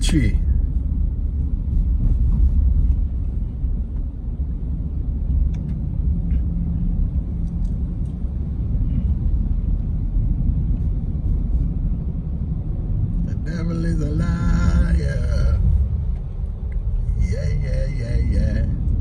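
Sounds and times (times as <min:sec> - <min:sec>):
car engine and road noise: 0:00.0 - 0:19.0
faint light ticks: 0:05.3 - 0:06.5, 0:07.4 - 0:08.2.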